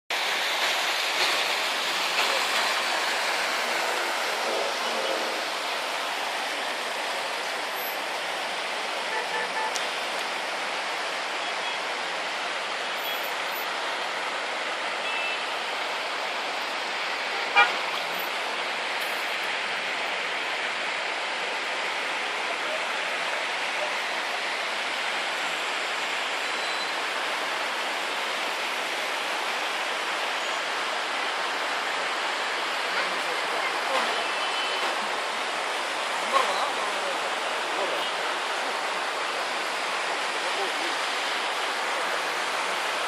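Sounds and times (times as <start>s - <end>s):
heavy rain hissing: 0.1s - 43.0s
road traffic: 0.1s - 43.0s
car horn toots: 17.5s - 17.8s.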